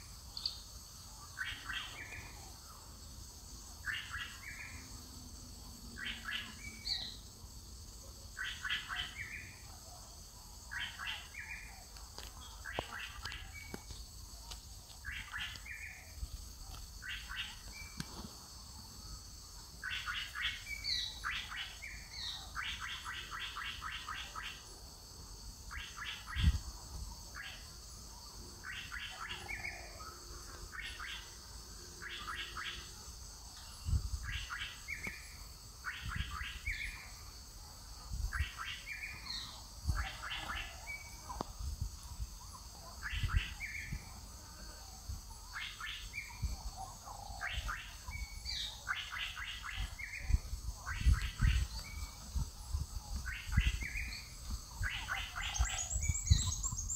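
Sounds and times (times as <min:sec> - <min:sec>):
bird chirping calls: 0:00.0 - 0:03.0, 0:05.9 - 0:07.2, 0:10.7 - 0:18.3, 0:19.7 - 0:24.7, 0:28.6 - 0:33.0, 0:38.3 - 0:44.3, 0:45.2 - 0:56.9.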